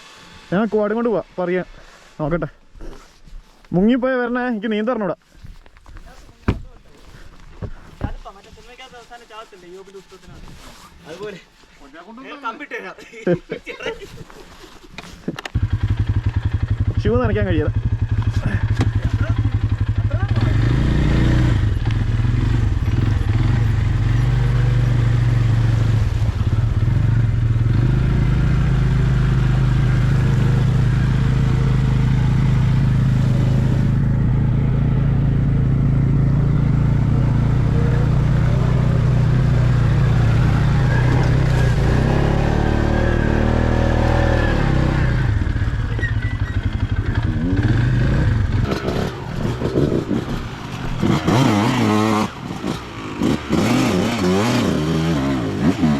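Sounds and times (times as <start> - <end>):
off-road vehicle engine: 0.0 - 4.8, 14.2 - 55.9.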